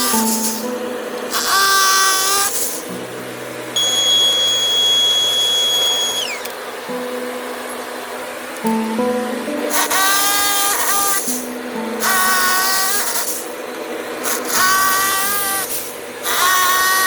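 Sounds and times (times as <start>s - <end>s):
guitar music: 0.0s - 5.9s, 6.6s - 17.0s
electric power tool whine: 0.0s - 17.0s.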